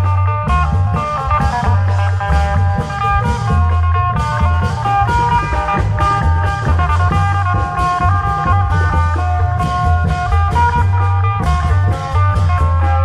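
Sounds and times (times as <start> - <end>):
heavy held bass: 0.0 - 13.0
plucked guitar-like melody: 0.0 - 13.0
steady drum strokes: 0.0 - 13.0.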